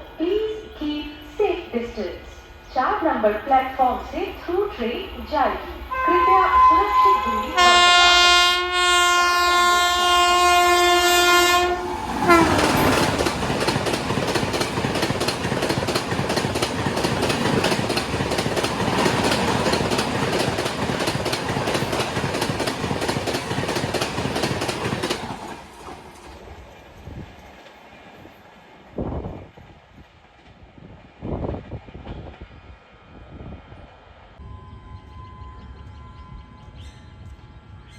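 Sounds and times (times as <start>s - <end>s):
locomotive horn: 5.9s - 13.0s
train wheels clattering over rail joints: 11.9s - 26.4s.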